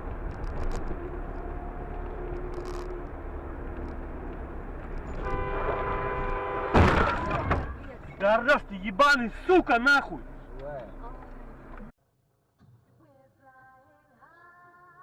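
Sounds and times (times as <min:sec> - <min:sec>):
road and engine rumble: 0:00.0 - 0:12.0
car horn held: 0:05.1 - 0:07.4.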